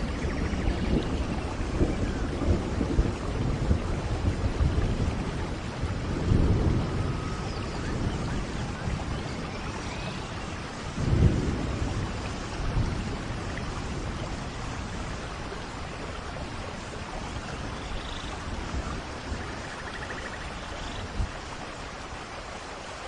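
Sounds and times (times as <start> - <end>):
rolling thunder: 0.0 - 20.4
steady rainfall: 0.0 - 23.0.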